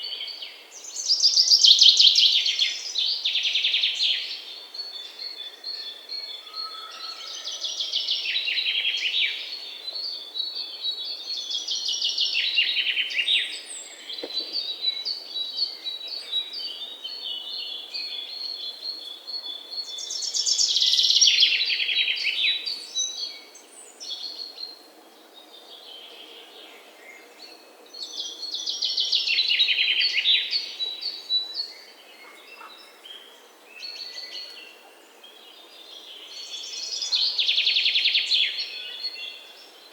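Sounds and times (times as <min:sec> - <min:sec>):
faint chirps of other birds: 0:00.0 - 0:39.9
songbird singing falling runs: 0:11.6 - 0:16.8.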